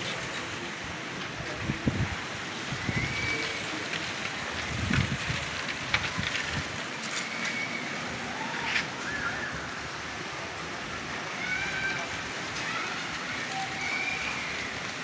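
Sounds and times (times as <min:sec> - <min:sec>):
steady rainfall hiss: 0:00.0 - 0:15.0
low wind rumbles: 0:01.6 - 0:03.4, 0:04.4 - 0:06.8.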